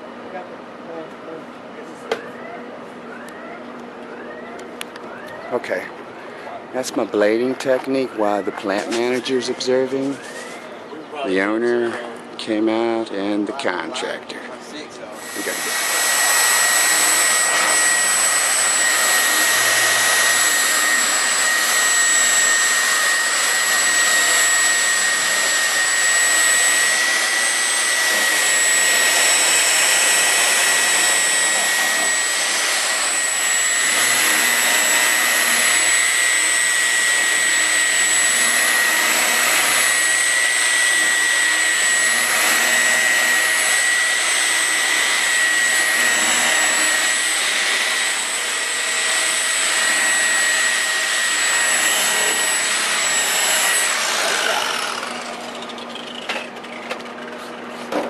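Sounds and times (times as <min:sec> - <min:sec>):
electric polisher motor whine: 0:02.1 - 0:05.9, 0:07.2 - 0:10.6, 0:15.2 - 0:58.0.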